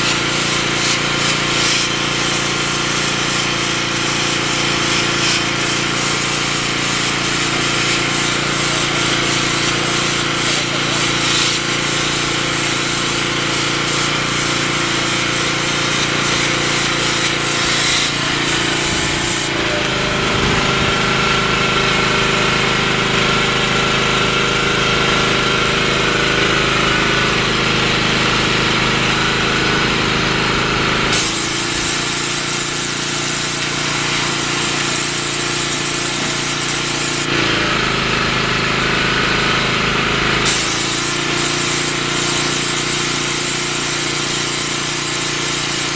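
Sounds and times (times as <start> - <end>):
high-pressure water spray hiss: 0.0 - 20.2, 31.1 - 37.3, 40.4 - 45.9
pressure washer motor humming: 0.0 - 45.9.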